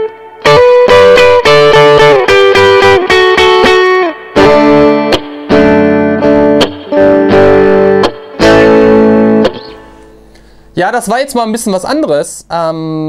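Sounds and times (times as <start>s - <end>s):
clean electric guitar chords: 0.0s - 10.6s.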